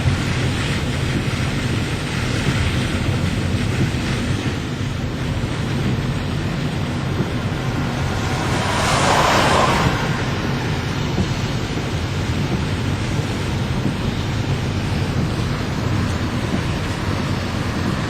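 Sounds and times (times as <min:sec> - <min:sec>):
rain rushing: 0:00.0 - 0:18.0
wind buffeting microphone: 0:00.0 - 0:18.0.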